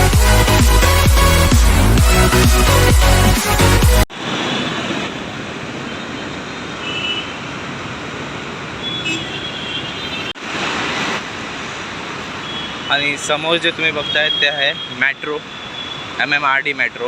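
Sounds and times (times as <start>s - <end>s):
electronic music: 0.0s - 4.1s
road traffic: 0.0s - 17.0s.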